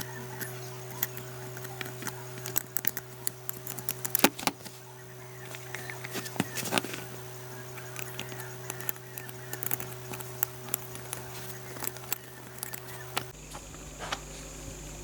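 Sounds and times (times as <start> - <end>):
steady electrical hum: 0.0 - 15.0
light clicks and taps: 5.4 - 13.3.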